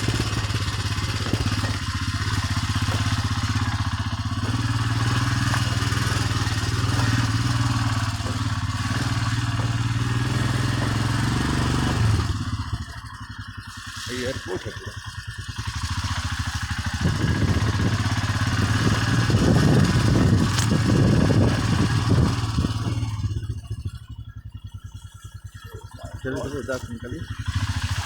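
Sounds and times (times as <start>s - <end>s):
motorcycle engine running: 0.0s - 28.0s
wind on microphone: 16.9s - 23.4s.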